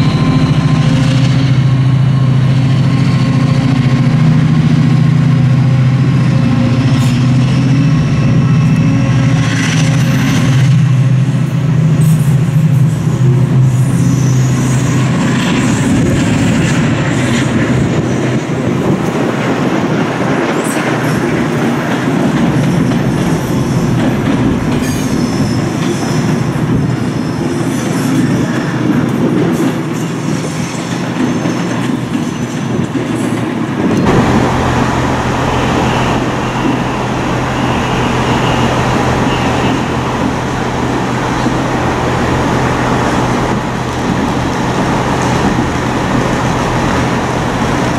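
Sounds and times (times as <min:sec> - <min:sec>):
train wheels rumbling: 0:00.0 - 0:47.9
diesel engine idling: 0:34.0 - 0:47.9.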